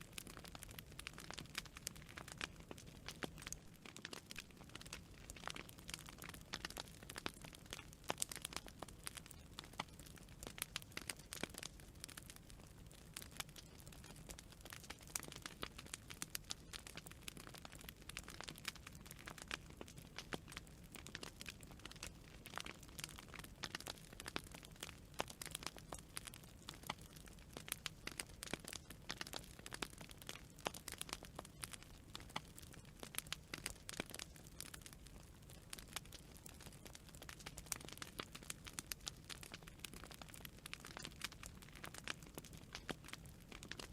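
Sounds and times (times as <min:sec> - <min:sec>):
campfire crackling and popping: 0:00.0 - 0:43.9
low rumble of flames: 0:00.0 - 0:43.9.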